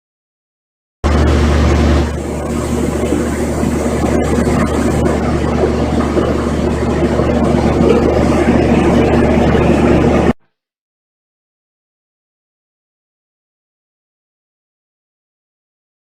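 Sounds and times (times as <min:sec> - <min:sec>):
machinery hum and rumble: 0:01.0 - 0:10.4
low drone: 0:01.1 - 0:10.4.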